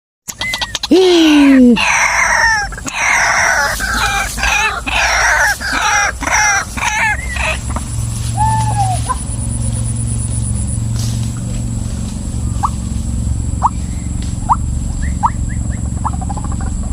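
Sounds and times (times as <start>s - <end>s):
waterhen harsh calls: 0.3s - 9.3s
steady low hum: 0.3s - 16.9s.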